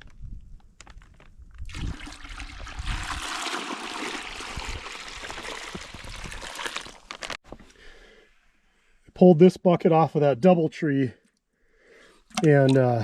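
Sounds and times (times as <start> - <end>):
liquid splashing into bucket: 1.6 - 7.0, 12.3 - 13.0.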